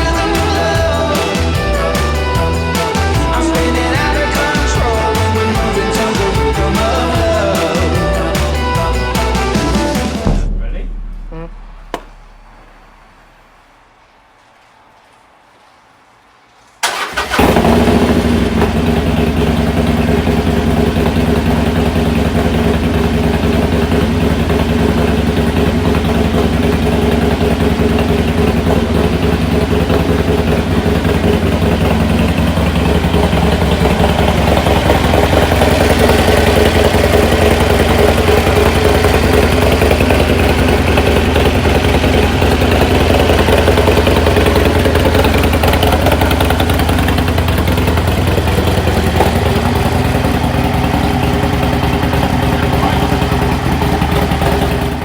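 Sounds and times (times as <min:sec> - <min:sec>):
motorcycle engine starting and idling: 0:00.0 - 0:13.7, 0:16.8 - 0:55.0.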